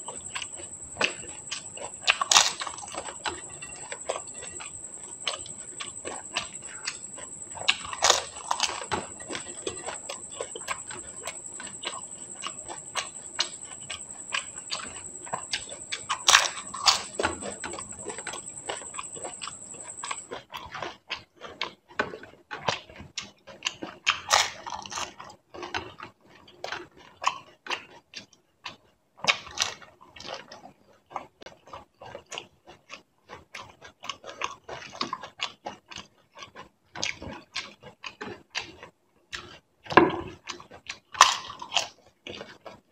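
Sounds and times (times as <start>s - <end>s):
steady high-pitched whine: 0.0s - 20.3s
chewing and crunching crisp shells: 0.0s - 42.9s.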